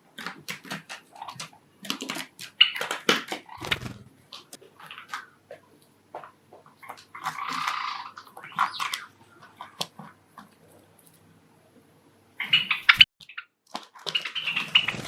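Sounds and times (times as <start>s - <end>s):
birds rustling: 0.2s - 5.2s, 14.0s - 15.0s.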